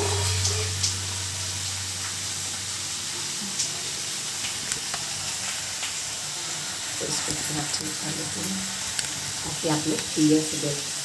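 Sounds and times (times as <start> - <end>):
low hum: 0.0 - 3.9
food sizzling in a pan: 0.0 - 11.0.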